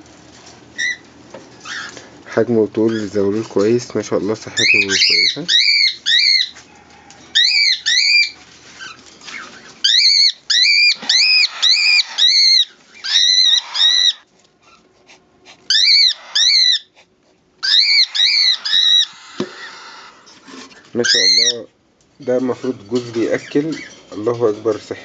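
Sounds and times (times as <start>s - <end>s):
pigeon squabs squealing: 0.8s - 2.0s, 4.6s - 6.6s, 7.3s - 21.7s.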